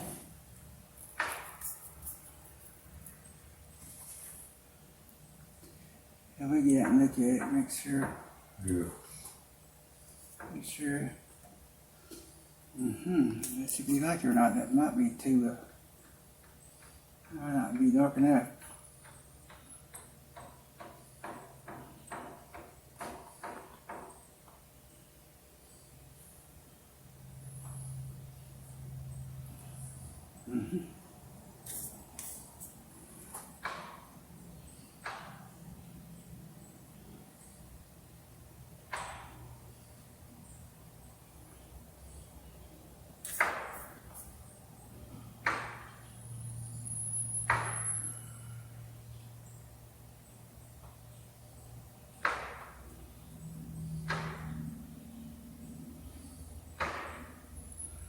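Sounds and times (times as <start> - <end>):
sharp ringing knocks: 47.1 - 48.5.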